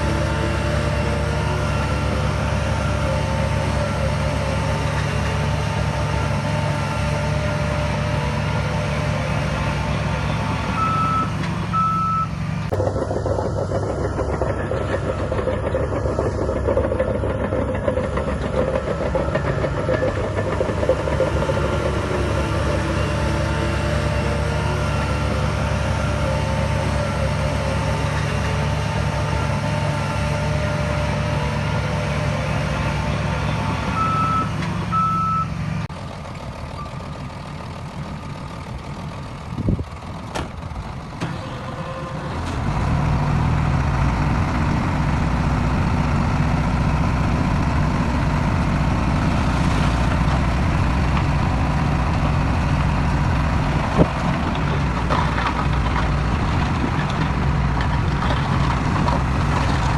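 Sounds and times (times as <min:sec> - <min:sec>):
heavy diesel machinery running: 0:00.0 - 0:59.9
reversing alarm beeps: 0:10.8 - 0:12.3, 0:33.9 - 0:35.5.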